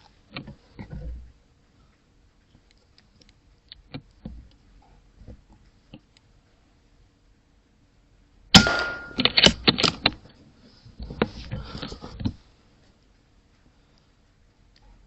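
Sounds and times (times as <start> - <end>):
air rifle shot: 8.6 - 9.6.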